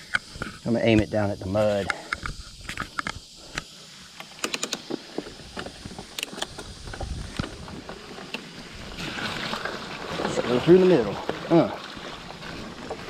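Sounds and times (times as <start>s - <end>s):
bike clicks and rattles: 1.8s - 8.7s.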